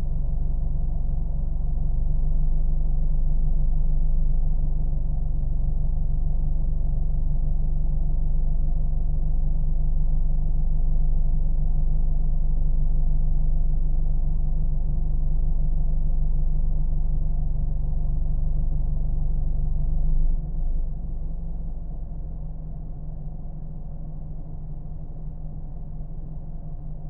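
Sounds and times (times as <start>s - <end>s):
car engine running: 0.0s - 3.7s.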